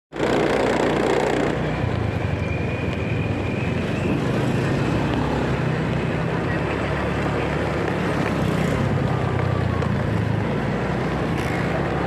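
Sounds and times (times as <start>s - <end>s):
road and wind noise: 0.1s - 12.0s.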